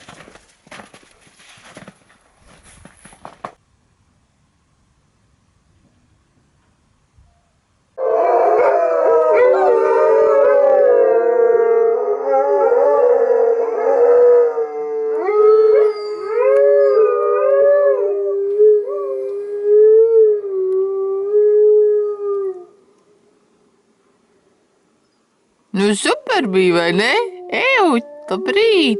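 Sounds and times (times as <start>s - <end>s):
dogs howling: 8.0s - 22.8s.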